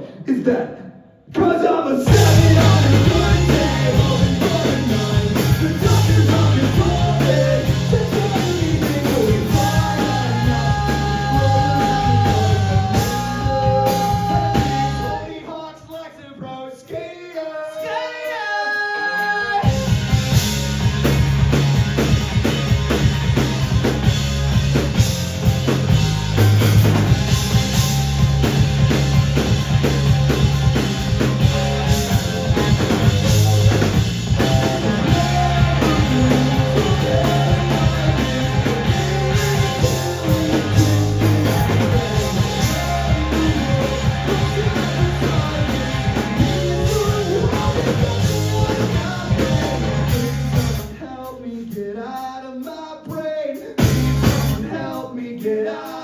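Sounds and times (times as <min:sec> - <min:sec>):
person singing: 0:01.4 - 0:19.8, 0:31.4 - 0:53.8
live rock band playing: 0:02.1 - 0:15.3, 0:19.2 - 0:51.0, 0:53.8 - 0:54.8.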